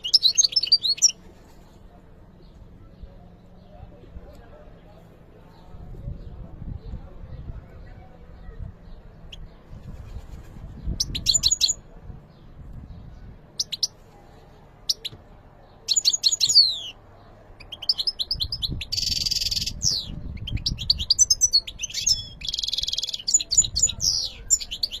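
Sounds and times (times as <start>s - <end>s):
finch twittering song: 0.0s - 1.2s, 8.4s - 14.0s, 14.8s - 17.0s, 17.6s - 25.0s.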